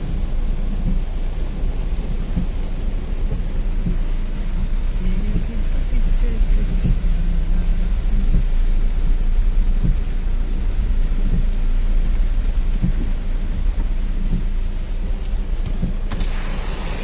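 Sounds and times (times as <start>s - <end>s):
heavy rain: 0.0s - 17.0s
low rumble: 0.0s - 17.0s
hiss of water: 16.1s - 17.0s.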